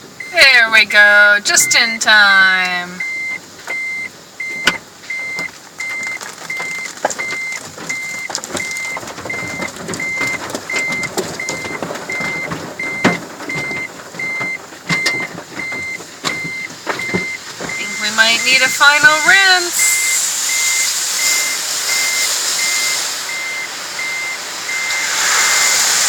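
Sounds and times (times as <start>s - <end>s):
car wash water and machinery: 0.0s - 26.0s
high electronic beep: 3.0s - 25.8s.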